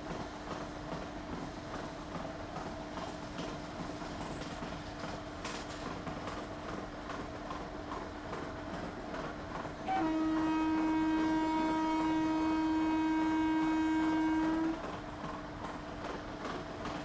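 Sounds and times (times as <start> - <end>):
moving train clatter: 0.0 - 17.0
train horn blast: 9.8 - 14.9.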